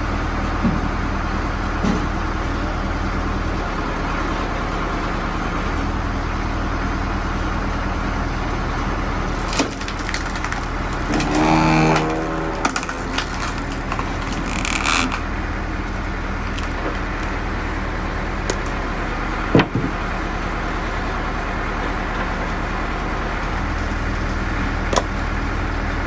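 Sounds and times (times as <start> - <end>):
tractor engine running: 0.0 - 26.0
wood crackling giving way: 8.7 - 26.0.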